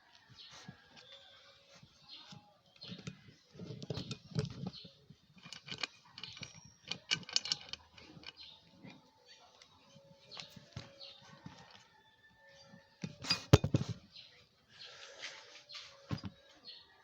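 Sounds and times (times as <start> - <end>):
wrench clicking and tapping on metal: 5.4 - 8.5.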